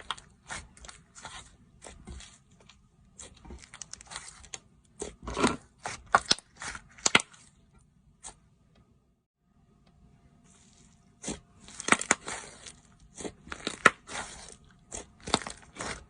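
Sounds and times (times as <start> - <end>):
slime squishing and popping: 3.2 - 7.5, 11.2 - 16.0.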